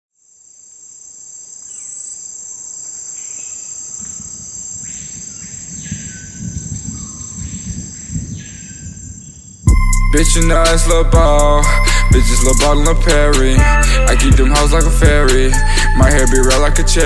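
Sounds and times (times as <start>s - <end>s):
cricket chirring: 0.2s - 17.0s
low bass beat: 9.7s - 17.0s.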